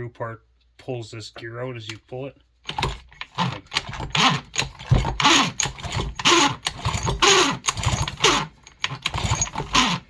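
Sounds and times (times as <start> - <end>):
chainsaw starter rope pulls: 2.7 - 10.0.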